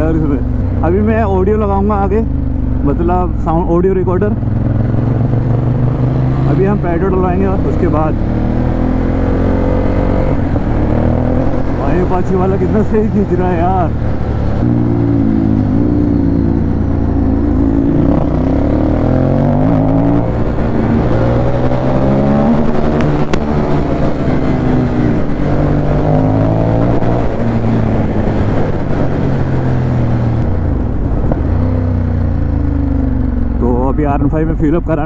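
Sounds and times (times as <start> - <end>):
motorcycle engine accelerating: 0.0 - 34.8.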